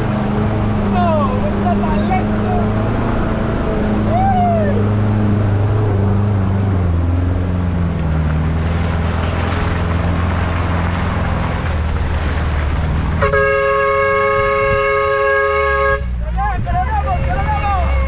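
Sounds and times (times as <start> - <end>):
car engine droning: 0.0 - 18.0
vehicle horn honking: 13.2 - 16.2, 17.0 - 18.0.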